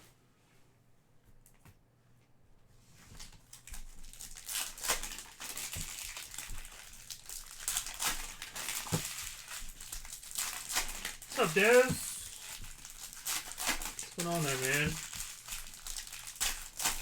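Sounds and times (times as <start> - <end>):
card pack wrappers crinkling: 4.2 - 17.0.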